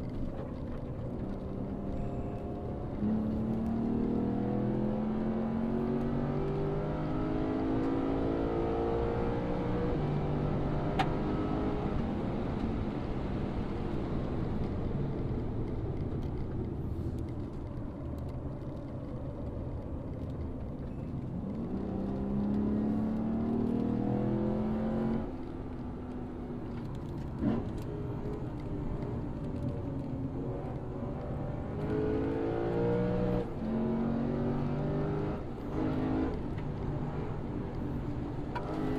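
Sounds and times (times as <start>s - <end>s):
car engine accelerating hard: 0.3s - 12.6s, 21.3s - 26.2s, 26.8s - 38.9s.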